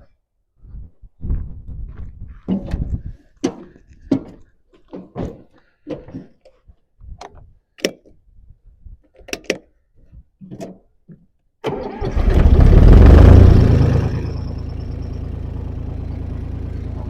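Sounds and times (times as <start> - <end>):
diesel tractor engine starting: 11.6 - 17.0.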